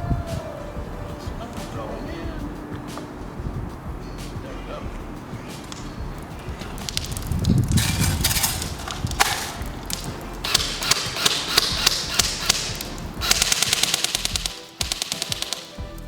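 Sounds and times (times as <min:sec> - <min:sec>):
airsoft rifle automatic fire: 0:07.9 - 0:15.8.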